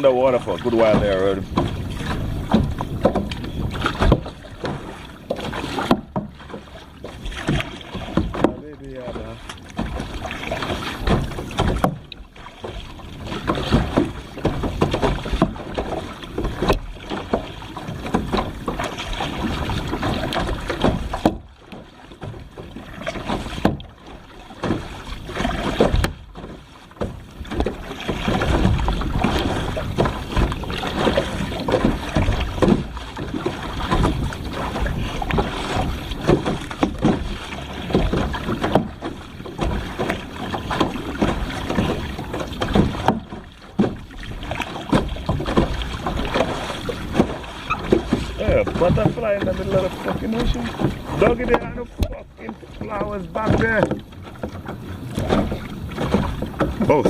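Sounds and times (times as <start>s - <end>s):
wind rumbling on microphone: 0.0s - 5.9s, 27.2s - 43.4s
paddle strokes splashing water: 0.0s - 57.0s.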